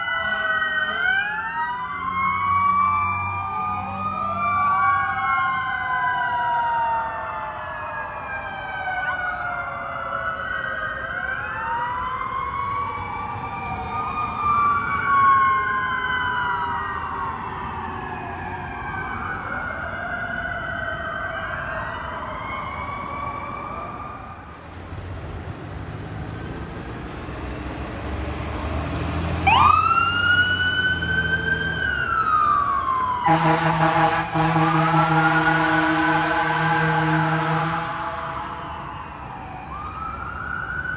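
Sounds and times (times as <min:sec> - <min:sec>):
fire truck sirens wailing: 0:00.0 - 0:40.9
truck engine rumble: 0:22.2 - 0:40.9.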